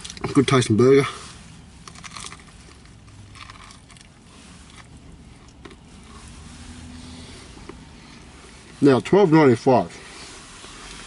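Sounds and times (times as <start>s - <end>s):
person chewing food: 1.8s - 6.2s.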